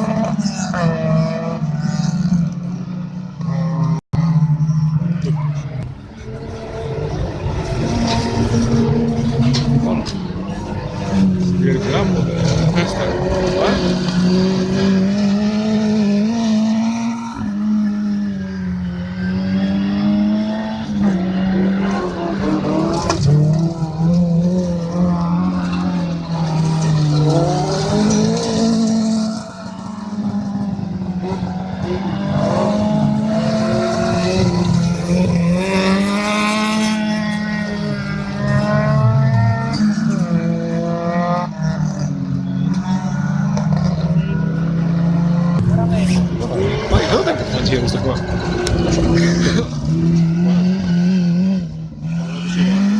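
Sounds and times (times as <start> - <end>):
race car engines revving: 0.0 - 52.9.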